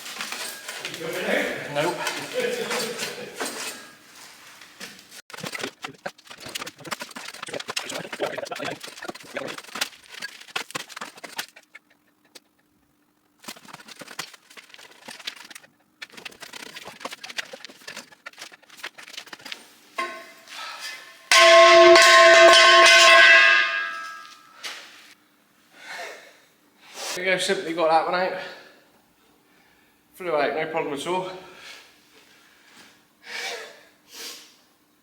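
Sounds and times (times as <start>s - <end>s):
loud metallic ring of steel tube: 20.0s - 20.5s, 21.3s - 24.5s.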